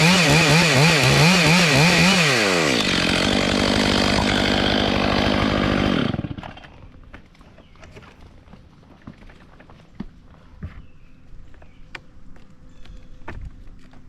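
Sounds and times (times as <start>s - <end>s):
chainsaw running at high revs: 0.0s - 6.6s.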